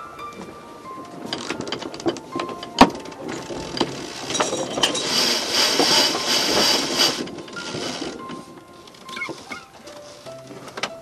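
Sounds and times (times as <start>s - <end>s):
winch ratchet clicks: 1.3s - 8.3s
rushing hiss: 2.3s - 10.8s.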